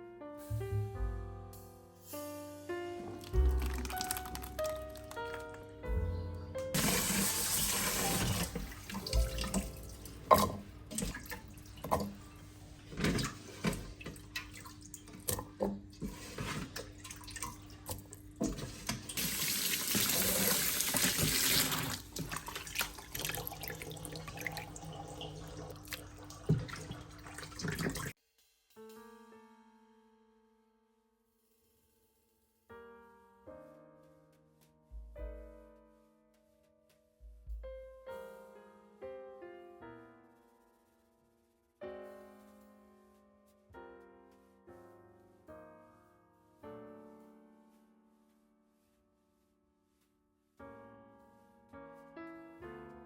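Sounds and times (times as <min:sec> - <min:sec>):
tap running into a sink: 0:06.8 - 0:12.2, 0:13.0 - 0:28.1
knocks and clinks at sink: 0:10.3 - 0:11.2.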